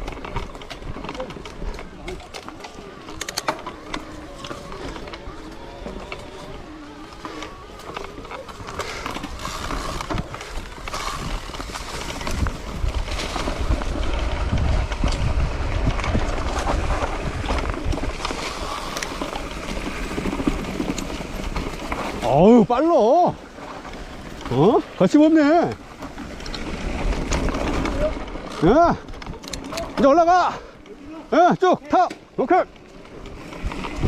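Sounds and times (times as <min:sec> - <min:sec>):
bike rattling and knocking: 0:00.0 - 0:34.0
bike tyres on dirt: 0:00.0 - 0:34.0
wind rumble on microphone: 0:09.3 - 0:22.2.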